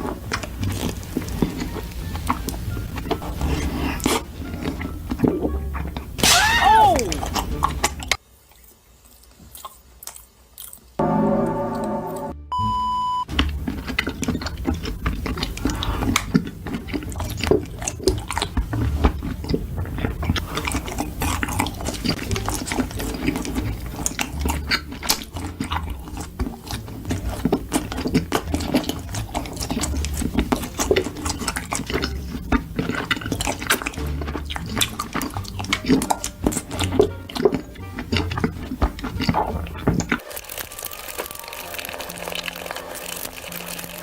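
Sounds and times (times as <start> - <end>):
close-miked chewing: 0.0 - 11.0, 13.3 - 44.0
short steady beep: 11.0 - 13.3.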